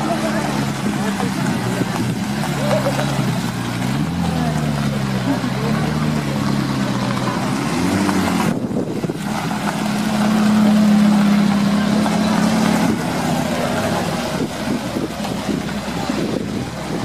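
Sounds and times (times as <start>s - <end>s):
car engines at low revs: 0.0s - 17.0s.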